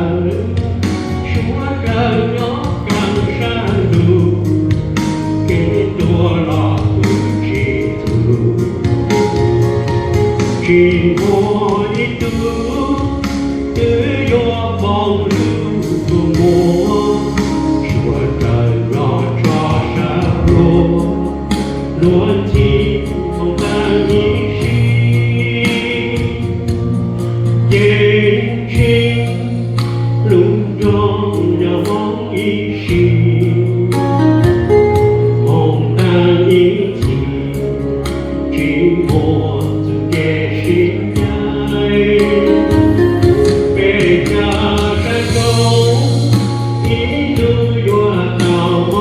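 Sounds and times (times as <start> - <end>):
accompaniment with steady beat: 0.0 - 49.0
group singing gospel song: 13.8 - 26.9, 43.8 - 49.0.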